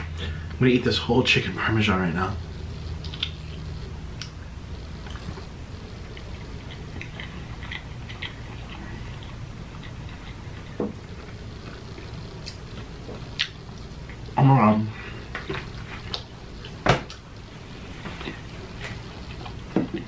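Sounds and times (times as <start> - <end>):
steady low hum: 0.0 - 20.0
person chewing food: 2.4 - 14.4, 15.0 - 20.0
wet mouth clicks: 2.5 - 4.4, 5.0 - 5.5, 13.3 - 14.3.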